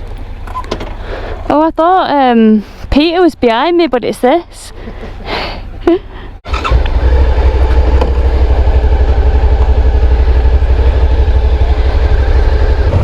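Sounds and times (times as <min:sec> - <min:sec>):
motorcycle engine running at low revs: 0:06.4 - 0:13.0.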